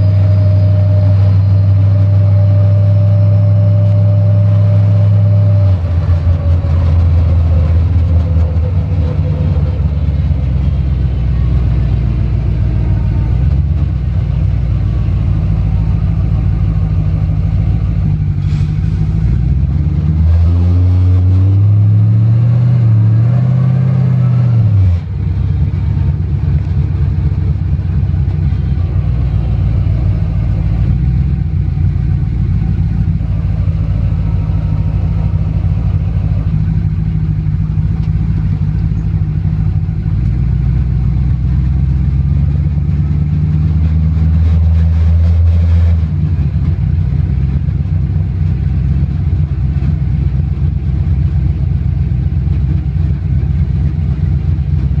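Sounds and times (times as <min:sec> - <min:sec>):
deep exhaust rumble: 0:00.0 - 0:55.0
road noise: 0:00.0 - 0:55.0.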